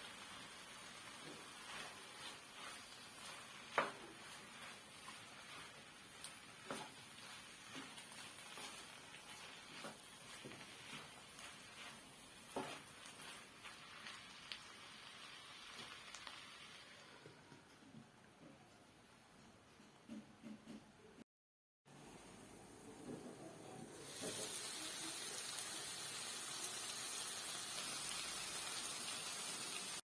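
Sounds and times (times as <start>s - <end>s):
kitchen taps and scrapes: 3.7s - 4.3s.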